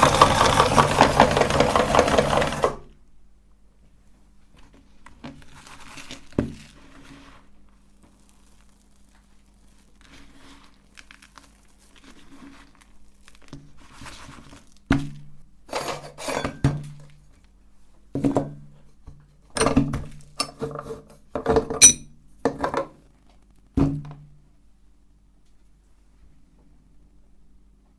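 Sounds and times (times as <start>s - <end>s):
hard objects clinking on metal: 21.8s - 22.1s.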